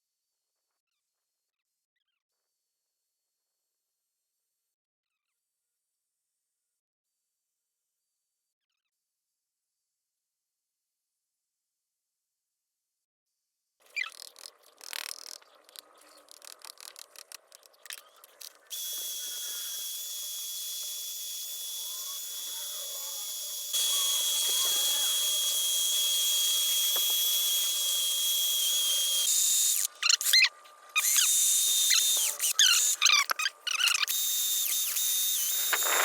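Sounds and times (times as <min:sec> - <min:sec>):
power tool whining: 0:18.7 - 0:36.0
scraping and clicking: 0:35.4 - 0:36.0.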